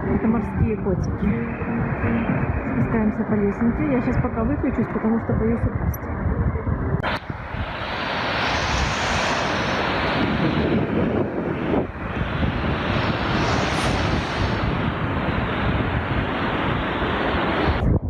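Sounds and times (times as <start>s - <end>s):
strong wind on microphone: 0.0s - 18.0s
waves rushing: 7.0s - 17.8s.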